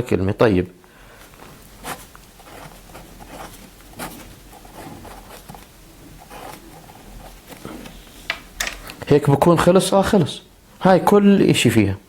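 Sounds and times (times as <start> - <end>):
pen scratching on paper: 1.8 - 7.9.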